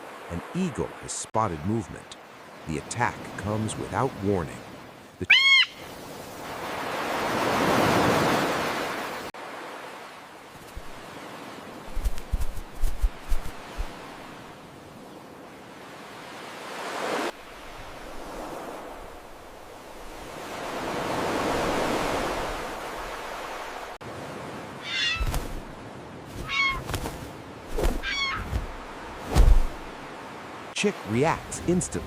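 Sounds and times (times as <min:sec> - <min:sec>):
high wavering bird cries: 0:05.3 - 0:06.0, 0:24.8 - 0:25.4, 0:26.4 - 0:27.0, 0:28.0 - 0:28.6
low thuds: 0:27.7 - 0:30.0.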